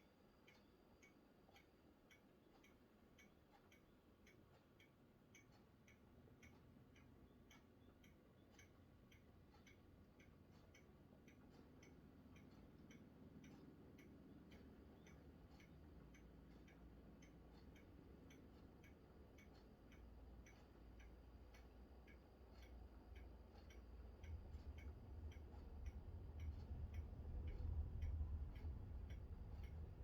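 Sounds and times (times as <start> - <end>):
faint regular ticking: 0.0 - 30.0
low rumble: 24.2 - 30.0.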